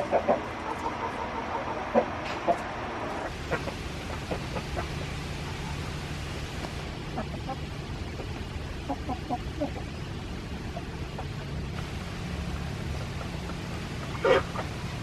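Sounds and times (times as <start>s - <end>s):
chickens clucking: 0.0s - 15.0s
low steady hum: 0.0s - 15.0s.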